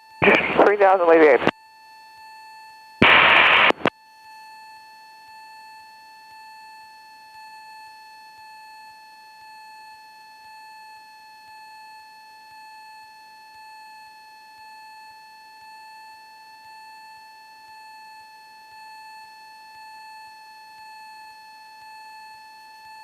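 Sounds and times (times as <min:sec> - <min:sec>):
radio static burst: 0:00.2 - 0:01.5, 0:03.0 - 0:03.9.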